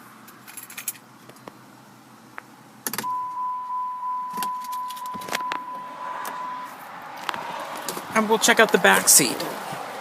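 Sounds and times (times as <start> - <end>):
car keys jangling: 0.3 - 1.0, 4.2 - 6.4
high electronic warning tone: 3.0 - 6.8.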